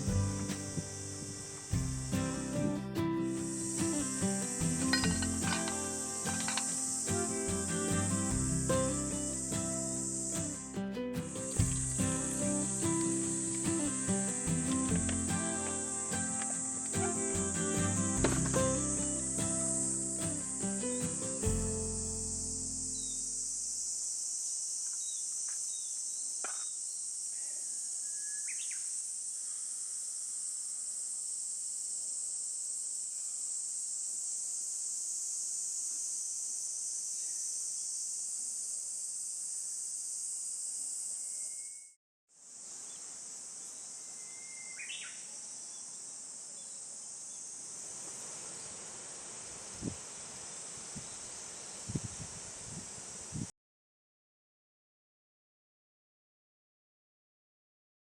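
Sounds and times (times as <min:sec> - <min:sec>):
shrill insect chorus: 0:00.0 - 0:53.4
short bird chirps: 0:28.0 - 0:28.9, 0:41.2 - 0:42.0, 0:44.2 - 0:45.2.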